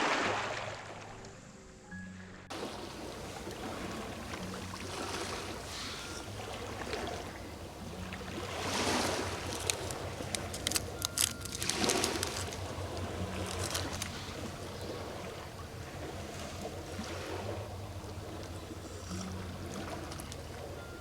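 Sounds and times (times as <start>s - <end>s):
sea waves washing onto shore: 2.5s - 21.0s
sharp clicks and crackles: 9.4s - 12.6s.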